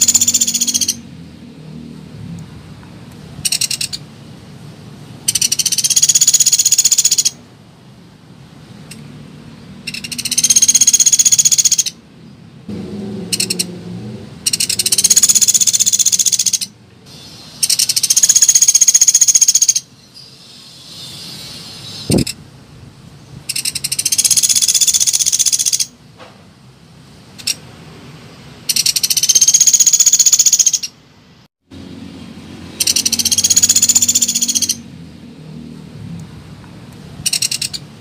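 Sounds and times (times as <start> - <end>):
woodpecker rattling trills: 0.0 - 1.0, 3.4 - 4.0, 5.3 - 7.4, 9.8 - 12.0, 13.4 - 13.7, 14.4 - 16.7, 17.6 - 19.9, 23.5 - 25.9, 28.7 - 30.9, 32.8 - 34.8, 37.3 - 37.8.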